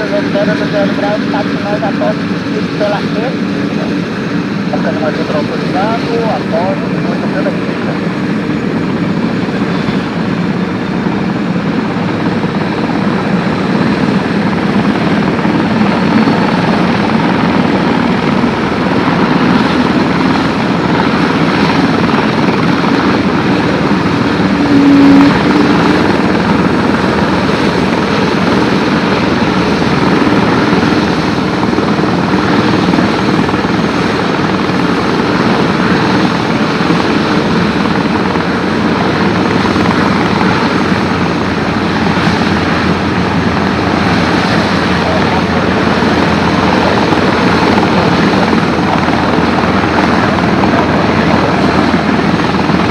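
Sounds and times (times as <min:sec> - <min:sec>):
helicopter rotor and turbine: 0:00.0 - 0:52.9.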